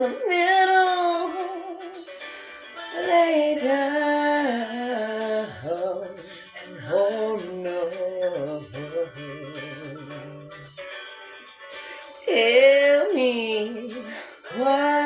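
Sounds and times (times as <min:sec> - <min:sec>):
woman singing wordless phrases: 0:00.0 - 0:02.0, 0:02.8 - 0:08.8, 0:12.2 - 0:15.0.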